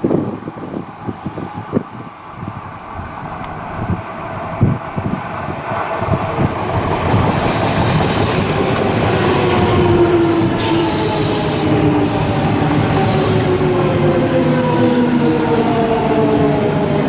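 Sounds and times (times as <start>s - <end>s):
electric train rumbling: 0.0s - 17.0s
train whine: 0.0s - 17.0s
train wheels hissing: 1.0s - 17.0s.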